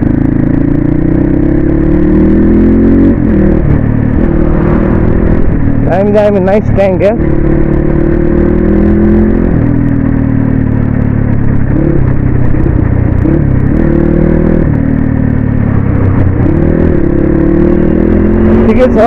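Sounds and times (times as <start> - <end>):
dirt bike engine: 0.0 - 19.0
wind rushing: 2.2 - 6.1.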